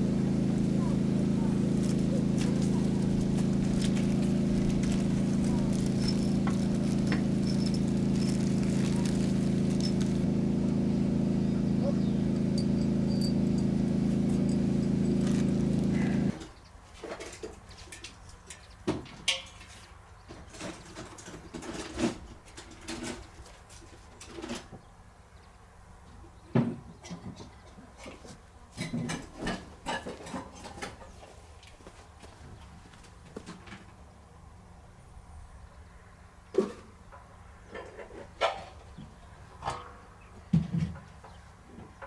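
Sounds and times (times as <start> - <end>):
motor humming: 0.0 - 16.4.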